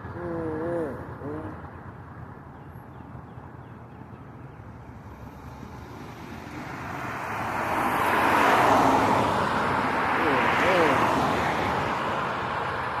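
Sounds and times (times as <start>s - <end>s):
passing vehicle tyre noise: 4.2s - 13.0s.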